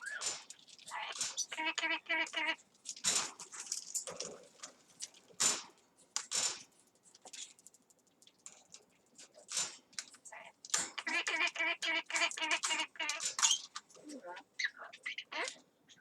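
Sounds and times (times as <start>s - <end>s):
parrot babbling: 0.9s - 2.6s, 10.3s - 16.0s
parrot squawks: 0.9s - 2.6s, 10.3s - 16.0s.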